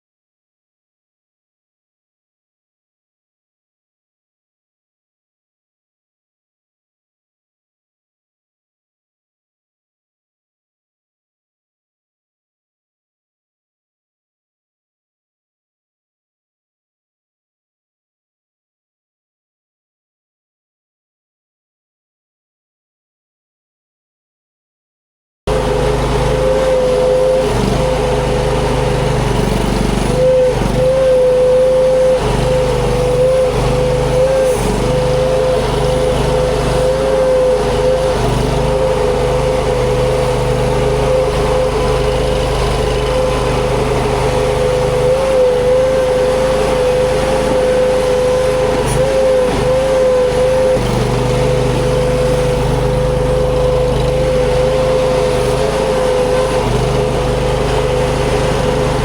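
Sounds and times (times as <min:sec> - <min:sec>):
engine drone: 0:25.5 - 0:59.0.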